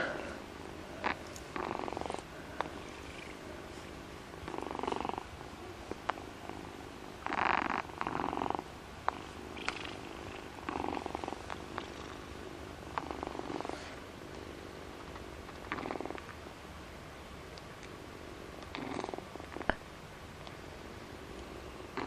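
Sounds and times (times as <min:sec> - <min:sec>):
cat purring: 0:01.0 - 0:14.1, 0:15.5 - 0:16.3, 0:18.6 - 0:19.8, 0:21.4 - 0:22.0.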